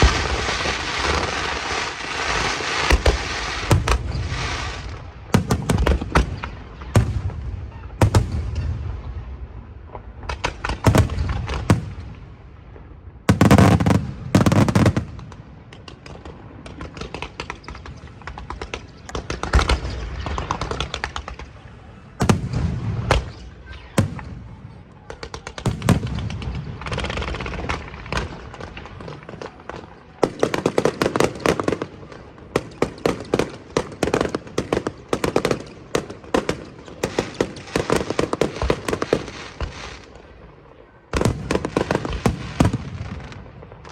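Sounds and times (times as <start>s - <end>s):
fireworks crackling: 0.0s - 43.9s
firework shells booming: 2.9s - 9.2s, 13.3s - 21.6s.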